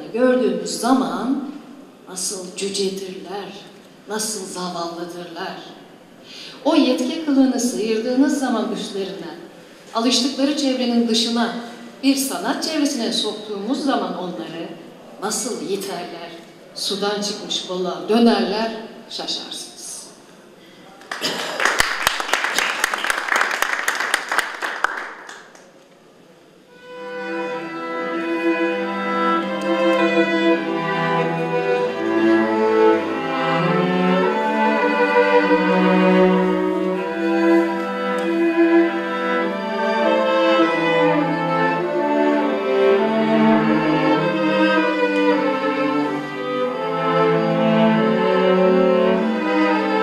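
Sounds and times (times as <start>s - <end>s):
people clapping: 21.0s - 25.9s
slow bowed string music: 26.7s - 50.0s.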